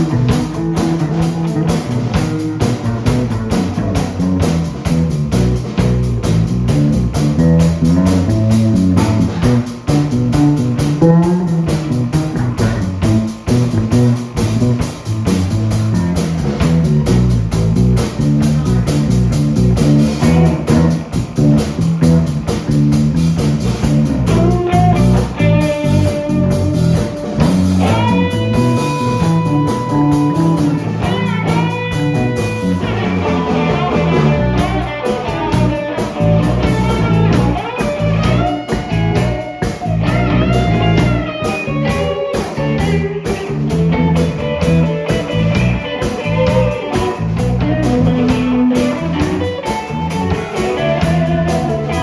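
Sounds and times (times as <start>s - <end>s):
bass guitar: 0.0s - 52.0s
drum kit beat: 0.0s - 52.0s
electric guitar solo: 24.2s - 52.0s.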